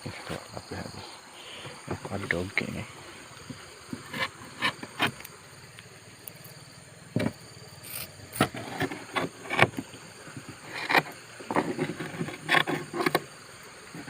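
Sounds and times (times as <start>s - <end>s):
scrapes and knocks on boat hull: 3.4s - 5.2s, 7.1s - 7.4s, 8.4s - 13.3s.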